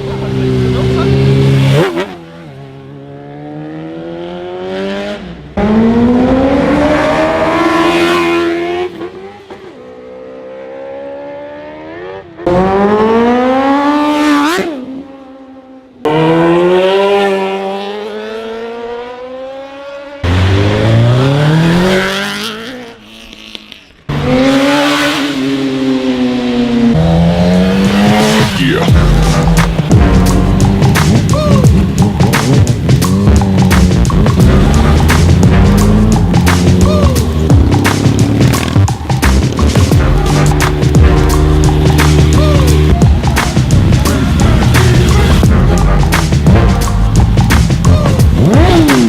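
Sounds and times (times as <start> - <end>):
superbike engines accelerating: 0.0 - 49.0.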